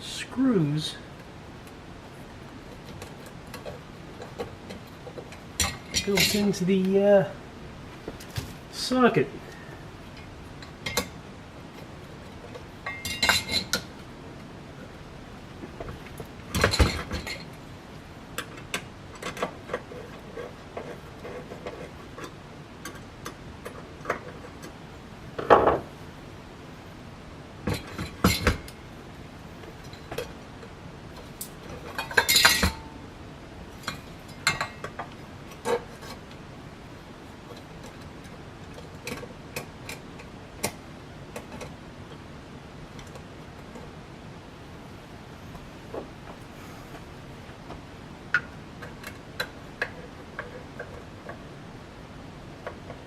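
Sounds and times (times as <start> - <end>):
metal parts clinking: 31.8 - 32.8.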